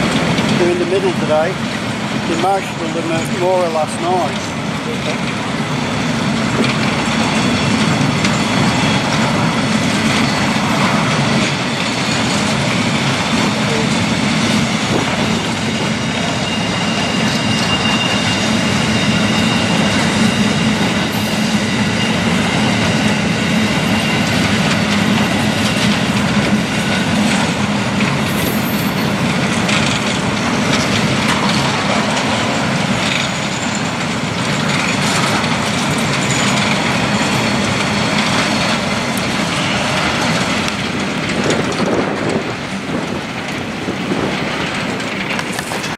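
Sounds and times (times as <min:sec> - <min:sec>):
train wheels on rail: 0:00.0 - 0:45.9
faint high wheel squeal: 0:15.6 - 0:25.8, 0:28.2 - 0:29.2.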